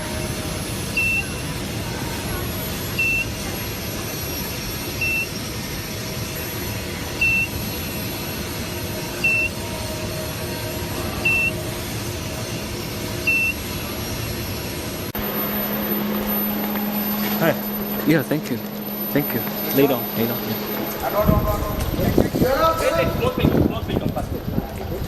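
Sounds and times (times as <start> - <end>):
steady low hum: 0.0 - 25.0
steady machine noise: 0.0 - 25.0
short high electronic beeps: 15.2 - 22.4.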